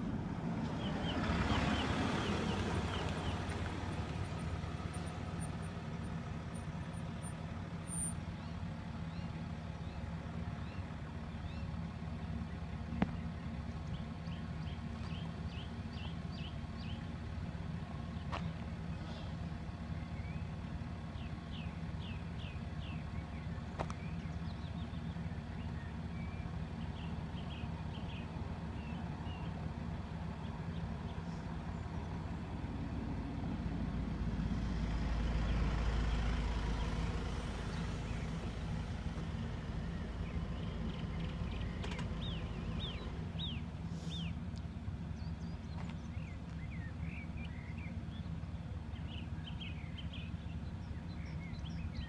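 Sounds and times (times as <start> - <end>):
vehicle passing by: 0.0 - 6.7, 25.6 - 44.4
vehicle engine humming: 0.0 - 52.0
small birds chirping: 0.6 - 52.0.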